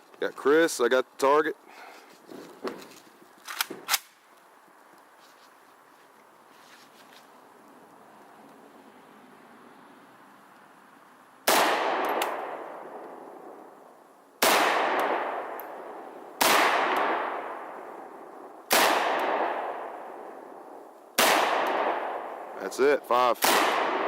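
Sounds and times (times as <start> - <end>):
gunshots: 11.5 - 12.6, 14.4 - 15.6, 16.4 - 17.8, 18.7 - 20.0, 21.2 - 22.3, 23.3 - 24.0.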